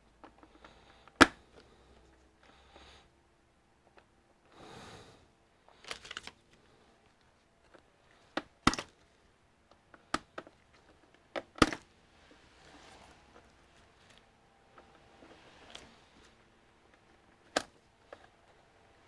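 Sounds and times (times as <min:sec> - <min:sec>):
plastic computer parts clicking: 0:05.7 - 0:06.7, 0:07.6 - 0:09.1, 0:09.7 - 0:11.9, 0:16.8 - 0:18.6
soft rustle: 0:09.0 - 0:19.0.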